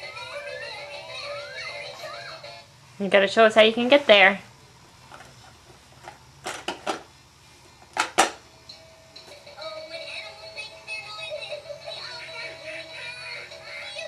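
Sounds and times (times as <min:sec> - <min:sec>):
electronic toy tune: 0:00.1 - 0:02.5.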